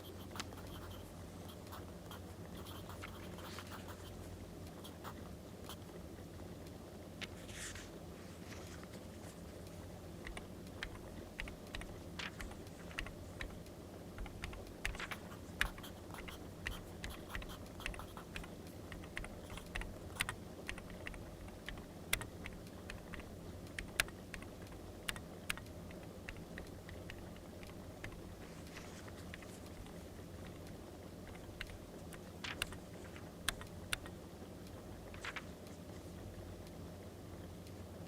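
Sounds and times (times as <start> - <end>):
paper and writing sounds: 0.0 - 5.9, 7.2 - 9.5, 14.2 - 21.6, 26.3 - 30.5
steady low hum: 0.0 - 38.0.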